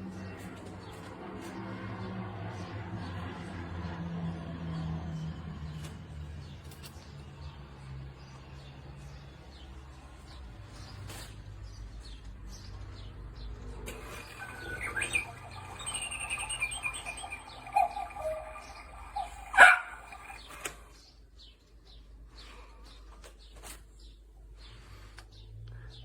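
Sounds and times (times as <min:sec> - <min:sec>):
cuckoo clock call: 0:13.9 - 0:21.0.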